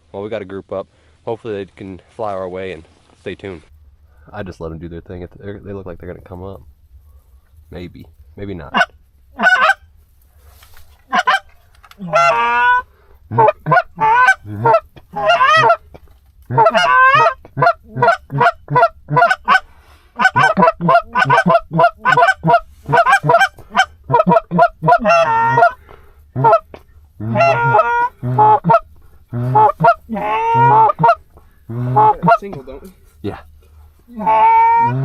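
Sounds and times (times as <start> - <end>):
goose honking: 8.7 - 9.8, 11.1 - 15.8, 16.5 - 32.9, 34.1 - 35.0.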